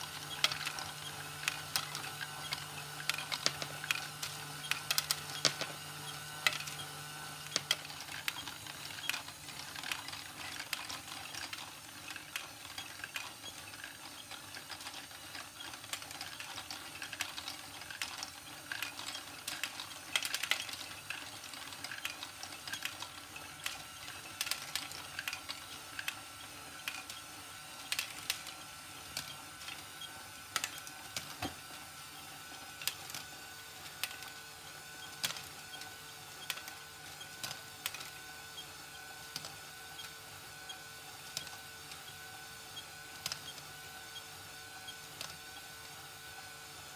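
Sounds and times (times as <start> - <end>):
motor and gear whine: 0.0 - 11.0.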